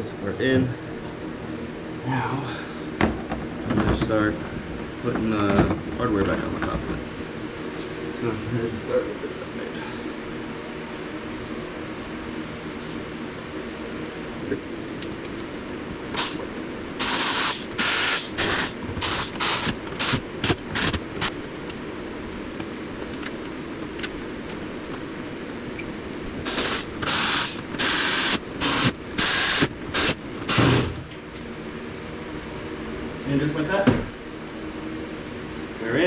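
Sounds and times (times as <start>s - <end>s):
power driver bursts: 16.2s - 16.4s, 17.0s - 21.3s, 26.5s - 31.0s.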